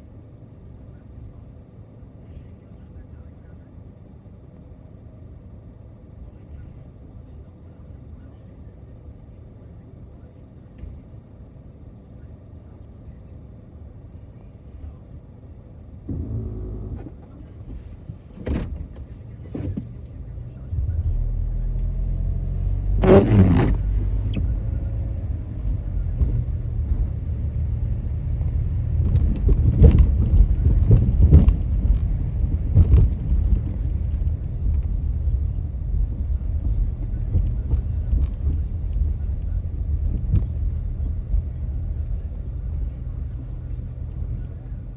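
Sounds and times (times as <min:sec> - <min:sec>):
car engine and road noise: 0:10.8 - 0:44.9.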